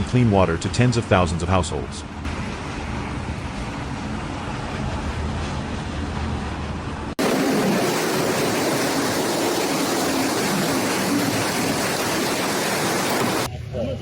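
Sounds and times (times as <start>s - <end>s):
roar of storm wind and rain: 7.2s - 13.5s.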